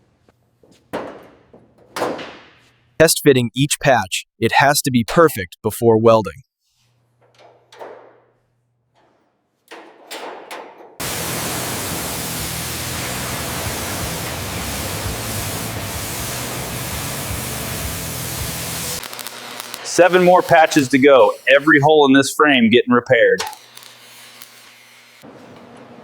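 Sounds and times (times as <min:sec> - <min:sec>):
loud steady hiss: 0:11.0 - 0:22.3.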